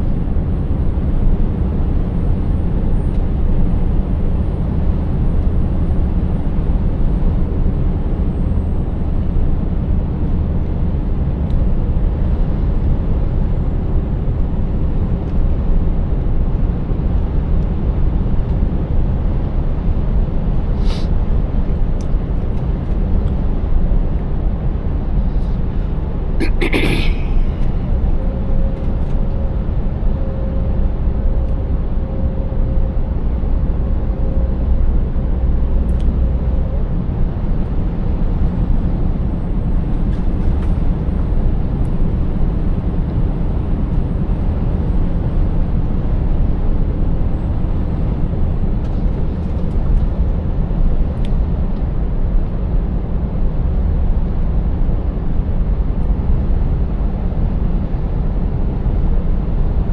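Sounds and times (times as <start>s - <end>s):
truck engine drone: 25.2s - 28.2s.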